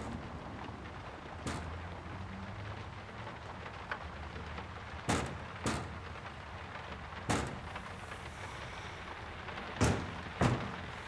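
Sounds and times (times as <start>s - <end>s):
steady hiss: 5.0s - 11.0s
sharp knocks: 5.1s - 5.9s, 7.3s - 7.6s, 9.8s - 10.8s.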